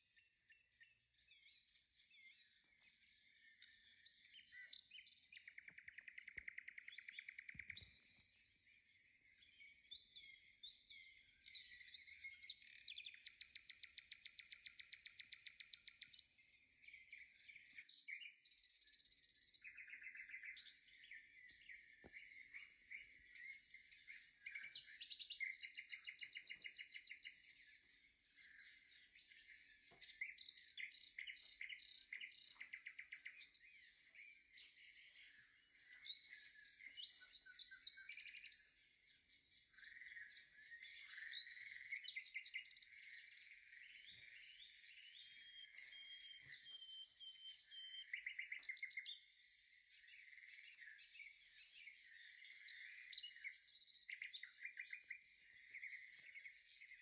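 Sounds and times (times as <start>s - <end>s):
small birds chirping and twittering: 0.0s - 57.0s
bird trills: 4.4s - 8.2s.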